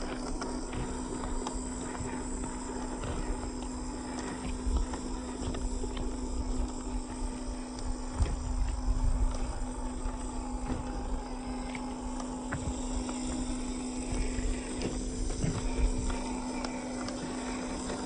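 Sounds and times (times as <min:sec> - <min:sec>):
motor hum: 0:00.0 - 0:18.0.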